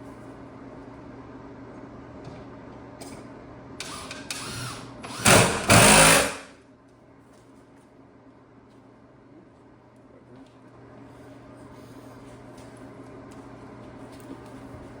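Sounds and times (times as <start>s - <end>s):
power drill fastening wood: 3.8s - 6.4s.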